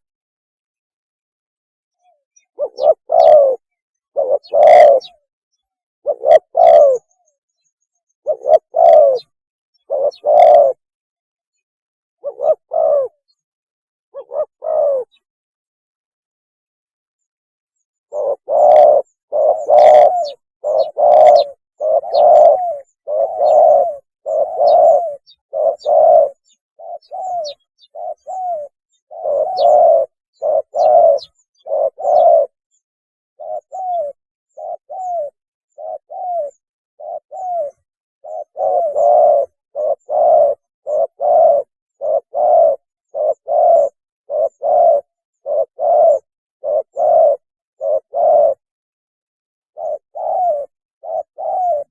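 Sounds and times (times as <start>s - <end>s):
dove cooing: 2.0s - 5.3s, 6.0s - 7.2s, 8.2s - 10.8s, 12.2s - 13.3s, 14.1s - 15.3s, 18.1s - 32.6s, 33.4s - 48.7s, 49.7s - 51.9s.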